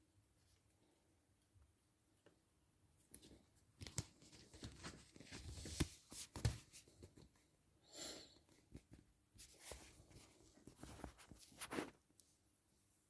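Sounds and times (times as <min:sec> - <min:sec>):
faint handling clicks and rustles: 0:08.5 - 0:12.4.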